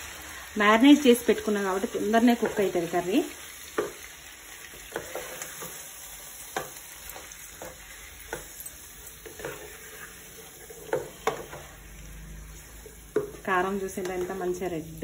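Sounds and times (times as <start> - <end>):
chicken sizzling in a pan: 0.0 - 15.0
spatula knocking and scraping pan: 3.7 - 4.0, 4.7 - 5.8, 6.5 - 11.8, 12.8 - 14.7.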